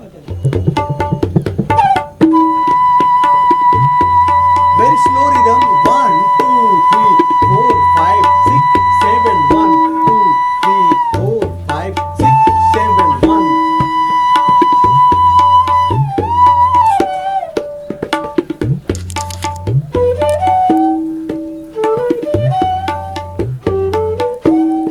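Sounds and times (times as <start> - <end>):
bamboo flute: 0.0 - 24.9
tabla rhythm: 0.0 - 24.9.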